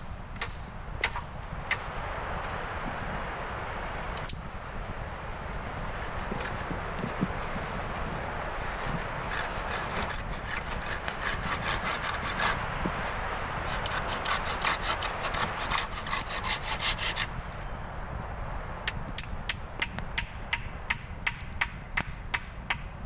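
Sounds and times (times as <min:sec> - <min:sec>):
hand saw cutting wood: 0:05.9 - 0:17.3.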